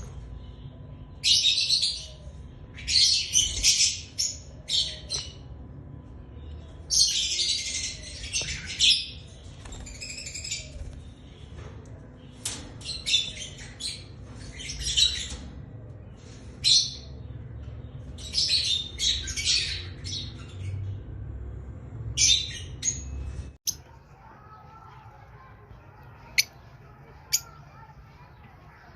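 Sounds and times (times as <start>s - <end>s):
lovebirds squawking and chirping: 22.2s - 28.9s.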